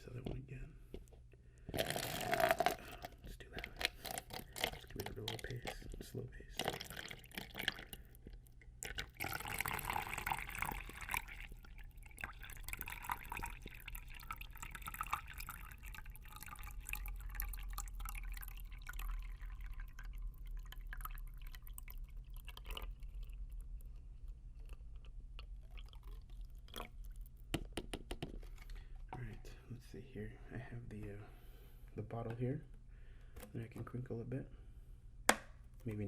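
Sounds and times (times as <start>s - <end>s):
water pouring into a cup: 1.7s - 23.9s, 25.4s - 27.5s.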